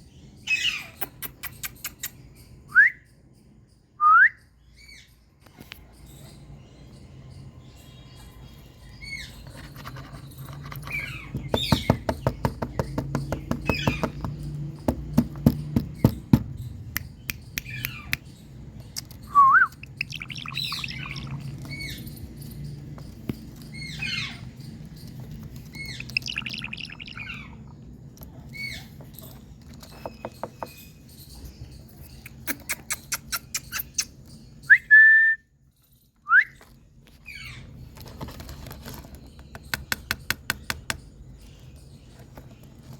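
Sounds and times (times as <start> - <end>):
parakeet chirps and squawks: 0.4 - 2.5, 8.1 - 10.1, 19.8 - 22.4, 23.7 - 24.8, 25.6 - 27.8, 31.9 - 34.4
rapid bird clicks: 32.2 - 34.2.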